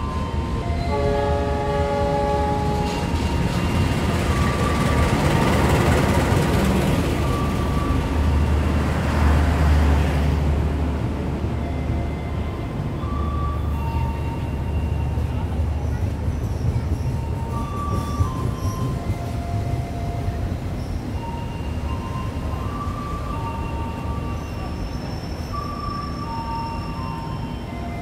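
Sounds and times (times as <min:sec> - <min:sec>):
train rolling past: 0:00.0 - 0:28.0
locomotive horn chord: 0:00.9 - 0:03.0.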